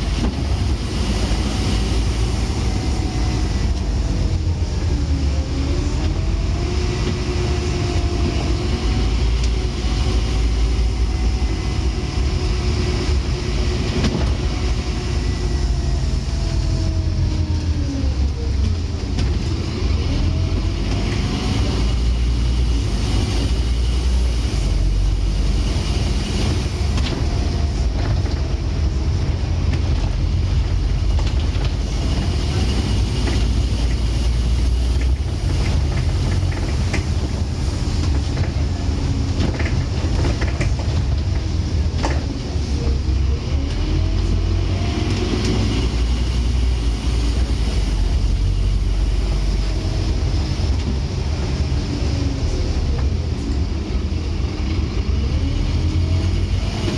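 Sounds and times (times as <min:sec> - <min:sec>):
bus engine rumble: 0:00.0 - 0:56.9.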